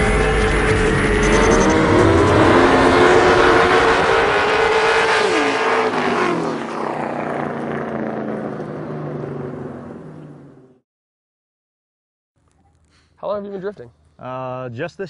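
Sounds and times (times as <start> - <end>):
car engine at high revs: 0.0 - 10.8.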